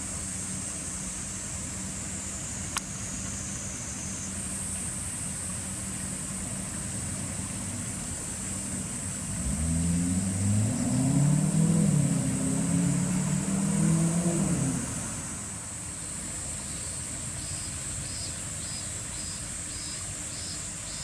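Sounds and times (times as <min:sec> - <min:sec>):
steady engine hum: 0:00.0 - 0:21.0
engine note rising and falling: 0:09.2 - 0:15.6.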